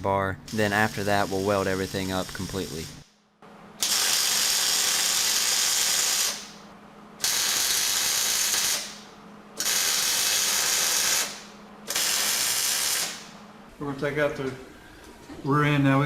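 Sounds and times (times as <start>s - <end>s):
welding arc crackling: 0.5s - 3.1s, 3.8s - 6.6s, 7.2s - 13.4s.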